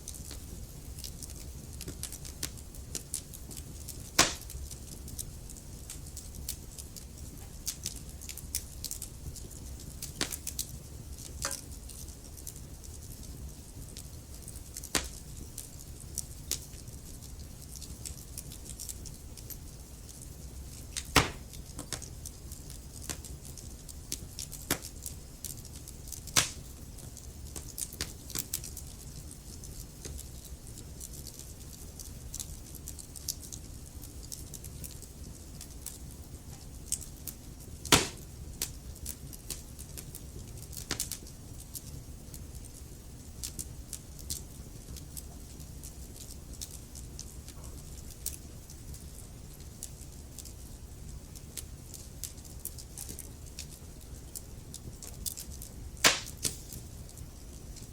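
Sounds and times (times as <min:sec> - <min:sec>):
log fire crackling: 0:00.0 - 0:57.9
loud fire pops: 0:01.8 - 0:05.2, 0:10.0 - 0:12.1, 0:14.8 - 0:15.3, 0:20.9 - 0:22.1, 0:26.2 - 0:26.8, 0:37.8 - 0:38.7, 0:56.0 - 0:56.9.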